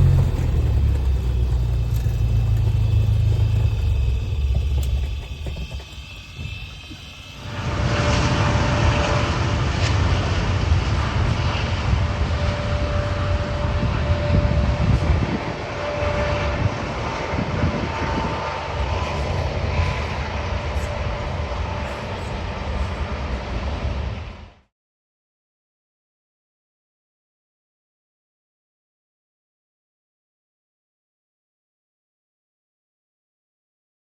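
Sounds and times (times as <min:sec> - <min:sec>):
propeller airplane engine running: 0:00.0 - 0:24.7.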